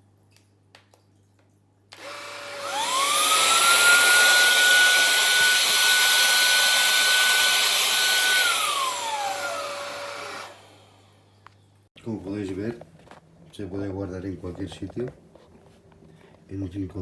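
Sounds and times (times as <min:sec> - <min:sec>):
vacuum cleaner motor whine: 0:01.9 - 0:11.2.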